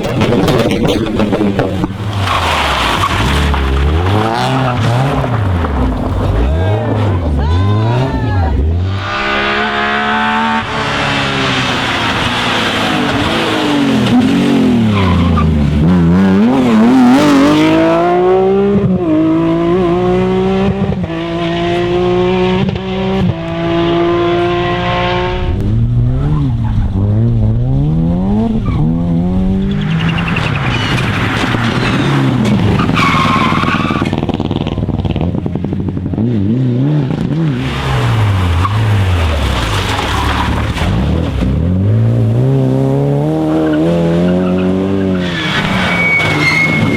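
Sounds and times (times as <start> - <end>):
rally car engines revving: 0.0 - 46.9
tyre squeal: 28.6 - 34.3, 43.5 - 46.9.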